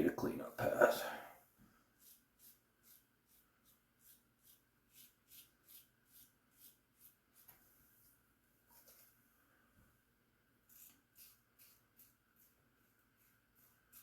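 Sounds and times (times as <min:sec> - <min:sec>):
razor scraping stubble: 0:10.7 - 0:12.6.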